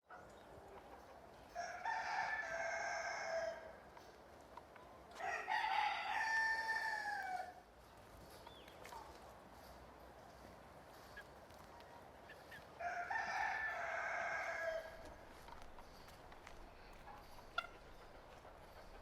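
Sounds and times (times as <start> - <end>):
rooster crowing: 1.6 - 3.8, 5.2 - 7.6, 12.8 - 15.1.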